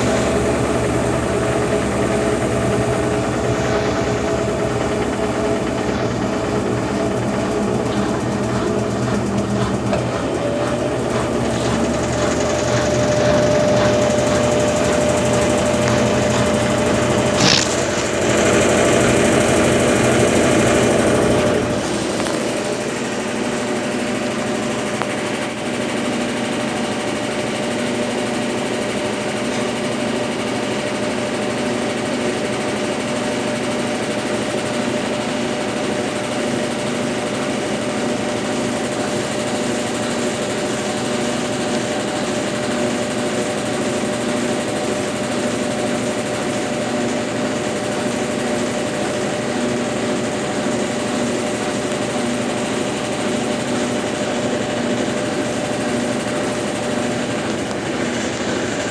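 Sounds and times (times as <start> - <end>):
washing machine running: 0.0 - 58.9.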